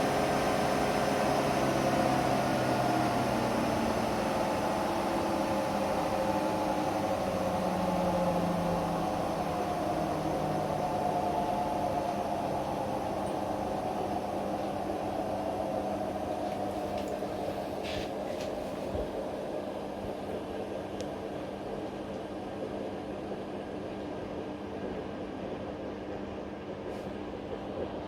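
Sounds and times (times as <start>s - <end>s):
washing machine spinning: 0.0s - 22.0s.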